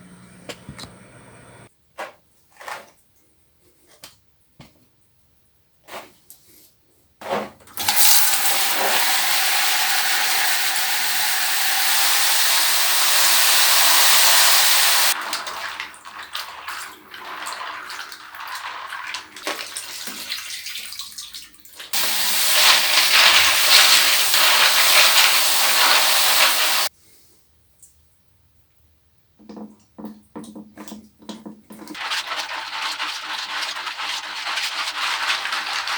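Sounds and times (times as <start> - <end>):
tap water running and splashing: 7.7 - 26.9, 29.4 - 35.9.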